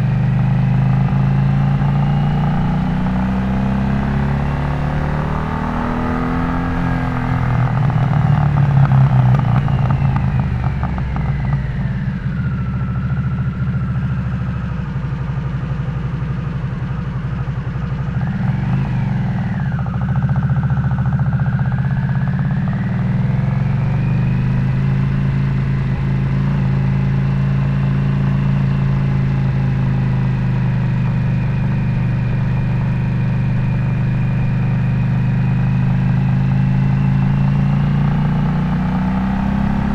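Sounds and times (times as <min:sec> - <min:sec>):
motorcycle engine revving: 0:00.0 - 0:14.3, 0:18.1 - 0:39.9.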